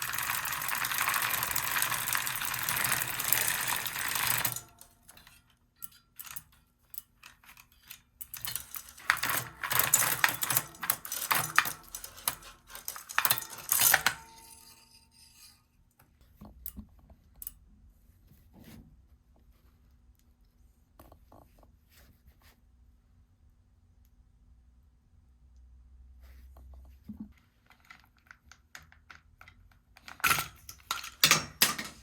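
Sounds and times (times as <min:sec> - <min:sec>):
hard objects clicking and clattering: 0:00.0 - 0:14.9, 0:27.7 - 0:32.0.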